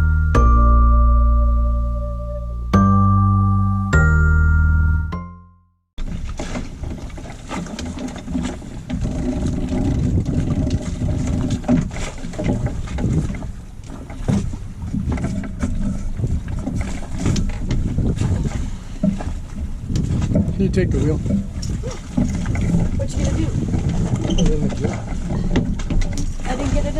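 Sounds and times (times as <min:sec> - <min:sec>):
water rushing past hull: 0:06.0 - 0:26.9
wind buffeting microphone: 0:06.3 - 0:26.9.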